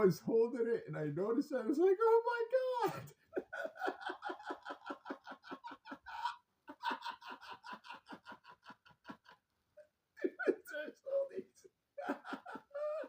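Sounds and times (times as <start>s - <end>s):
man laughing: 2.6s - 9.5s, 10.2s - 13.0s.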